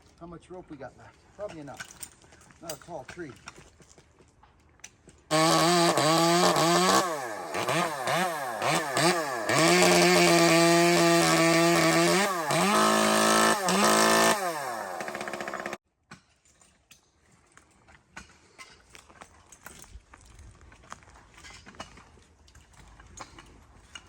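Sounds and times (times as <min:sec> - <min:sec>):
chainsaw revving: 0:05.3 - 0:15.8.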